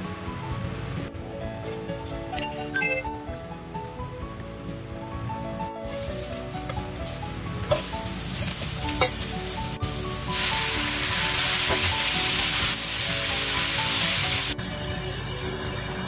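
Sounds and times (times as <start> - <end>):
food sizzling in hot oil: 5.8 - 14.6.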